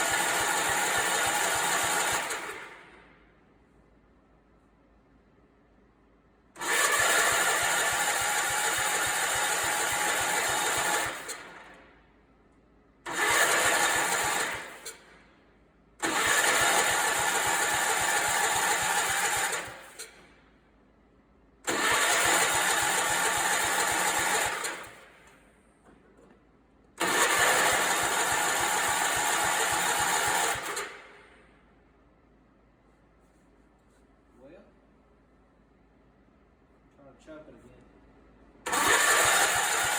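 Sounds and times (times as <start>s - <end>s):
tractor engine cranking: 0.0s - 2.7s, 6.6s - 11.7s, 13.1s - 15.1s, 16.0s - 20.2s, 21.7s - 25.0s, 27.0s - 31.2s, 38.7s - 39.9s.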